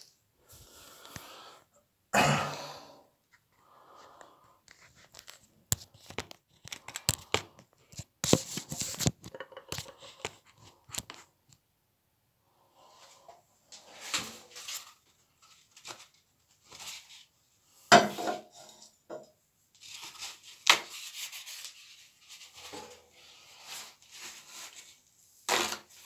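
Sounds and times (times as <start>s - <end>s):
handling clicks and scrapes: 4.7s - 11.3s.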